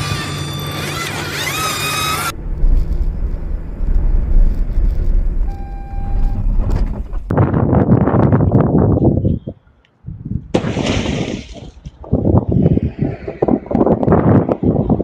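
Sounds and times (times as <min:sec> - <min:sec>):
engine and road rumble: 0:00.0 - 0:09.0
brief steady tone: 0:05.4 - 0:07.1.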